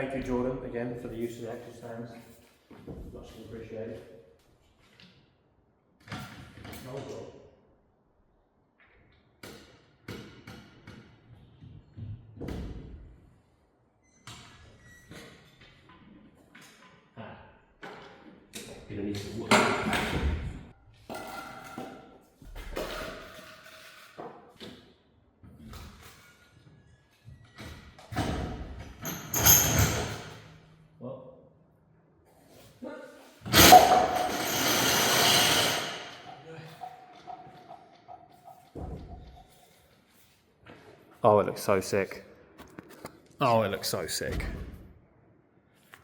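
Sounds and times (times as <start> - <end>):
metal jack knocks and clanks: 29.0 - 30.4, 33.5 - 36.4
wooden blocks clattering with ringing: 33.5 - 39.4.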